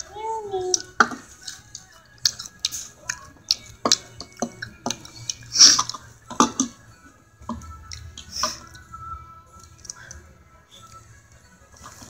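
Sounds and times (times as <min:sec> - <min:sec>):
person chewing with wet smacks: 0:00.7 - 0:06.8, 0:07.6 - 0:08.8.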